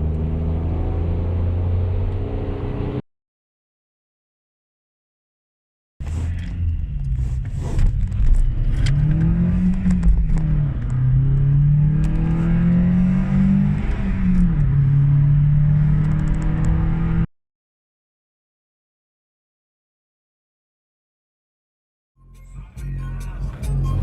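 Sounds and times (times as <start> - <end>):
car engine accelerating: 0.0 - 3.0, 6.0 - 17.3.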